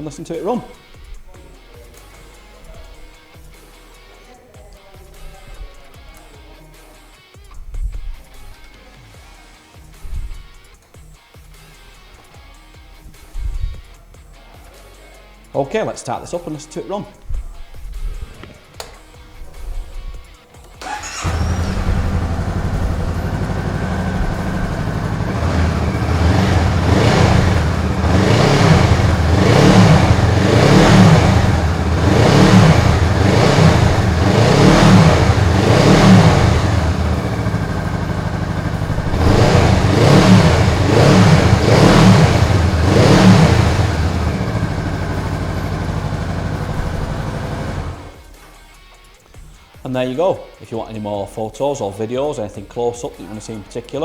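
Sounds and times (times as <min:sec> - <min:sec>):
motorcycle engine idling: 0:20.8 - 0:48.3.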